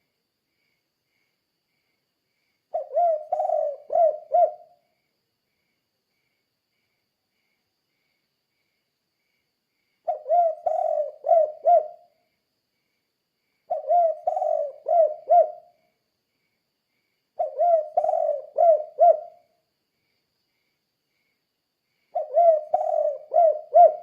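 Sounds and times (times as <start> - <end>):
dove cooing: 2.7 - 4.8, 10.1 - 12.1, 13.7 - 15.8, 17.4 - 19.4, 22.1 - 24.0.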